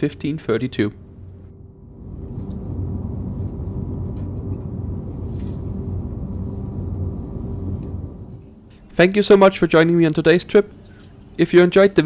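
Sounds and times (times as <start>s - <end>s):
electric train rumble and hum: 0.0s - 9.0s.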